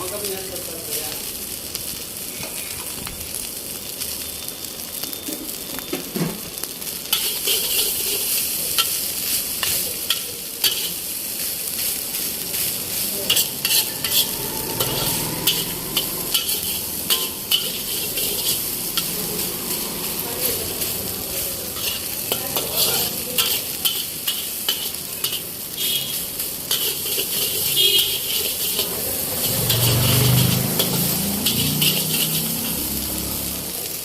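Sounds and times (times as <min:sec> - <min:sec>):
rice sizzling in a pan: 0:00.0 - 0:34.0
metal spatula scraping a pan: 0:07.1 - 0:09.0, 0:09.6 - 0:11.1, 0:12.5 - 0:33.0.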